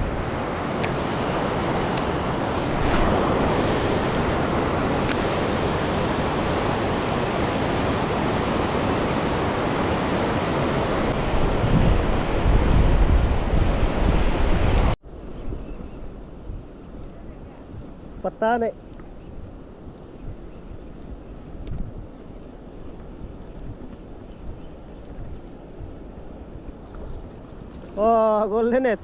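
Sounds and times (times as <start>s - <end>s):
river water rushing: 0.0s - 15.0s
wind buffeting microphone: 0.0s - 28.0s.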